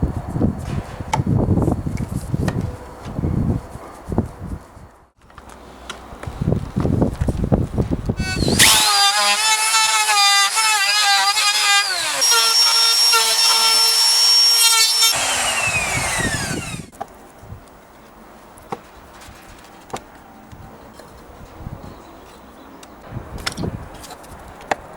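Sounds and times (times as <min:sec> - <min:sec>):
electric power tool whining: 0:08.2 - 0:16.9
rough strokes on wood: 0:08.2 - 0:16.9.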